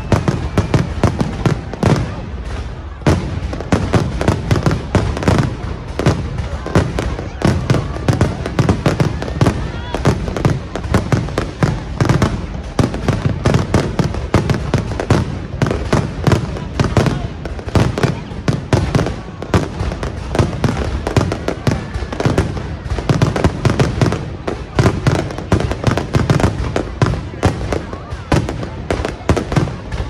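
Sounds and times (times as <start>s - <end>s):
fireworks bursting: 0.0s - 30.0s.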